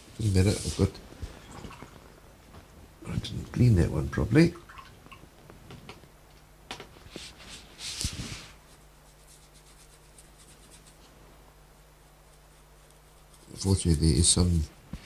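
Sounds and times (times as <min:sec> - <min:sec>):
scratching on paper: 0:07.1 - 0:11.1, 0:12.2 - 0:13.9
scratchy scrub: 0:07.3 - 0:11.1.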